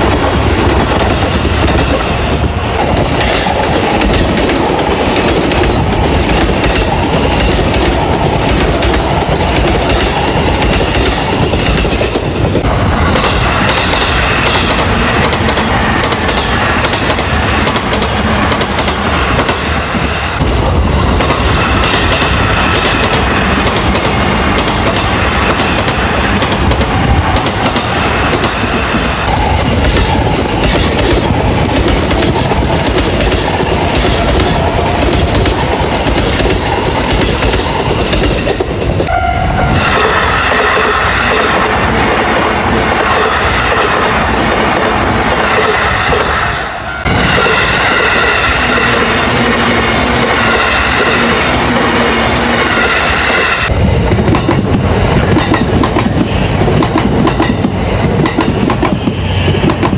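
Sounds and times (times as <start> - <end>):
train wheels clattering: 0.0 - 39.1, 47.0 - 59.9
steady high tone: 39.1 - 44.2.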